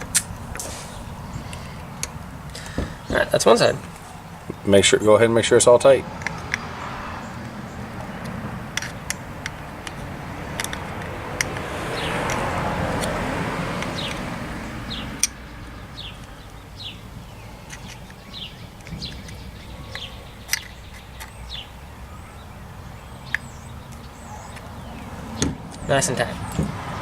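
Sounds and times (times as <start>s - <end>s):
sharp clicks of screws tightened: 8.2s - 13.2s, 17.6s - 18.2s
small bird chirping: 10.6s - 26.6s.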